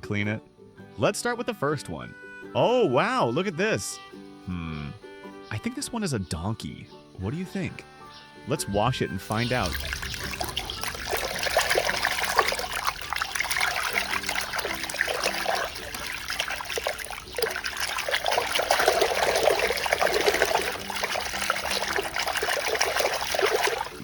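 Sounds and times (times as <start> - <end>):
water trickling and splashing: 8.9 - 24.0.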